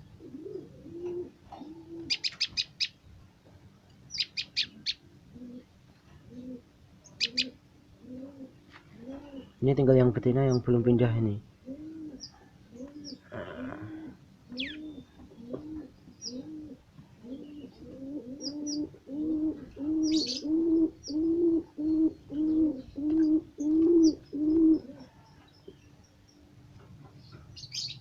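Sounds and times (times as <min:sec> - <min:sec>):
dove cooing: 0:00.0 - 0:02.8, 0:04.3 - 0:09.6, 0:11.6 - 0:25.4
small birds chirping: 0:01.2 - 0:03.2, 0:04.0 - 0:05.5, 0:06.3 - 0:13.7, 0:14.5 - 0:18.9, 0:19.8 - 0:28.0.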